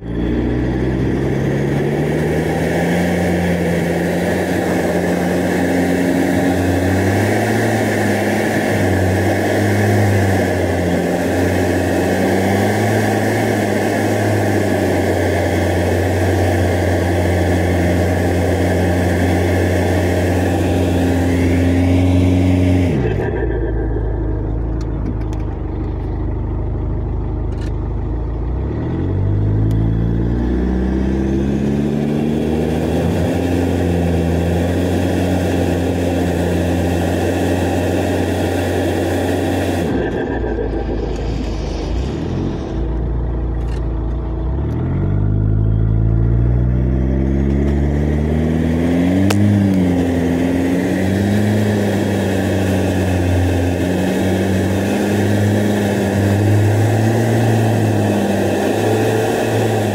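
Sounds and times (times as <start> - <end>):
engine running under load: 0.0 - 59.9
steady rushing noise: 1.6 - 26.1, 32.4 - 44.6.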